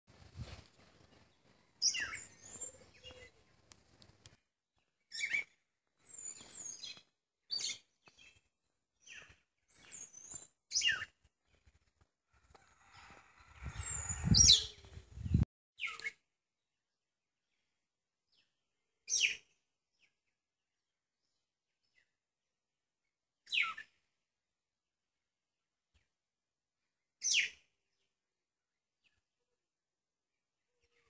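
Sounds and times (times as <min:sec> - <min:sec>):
birds chirping: 0:01.0 - 0:03.8.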